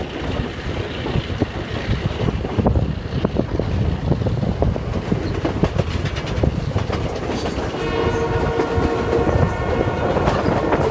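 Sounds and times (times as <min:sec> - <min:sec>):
train rumbling over rail joints: 0:00.0 - 0:10.9
locomotive horn: 0:07.7 - 0:10.9.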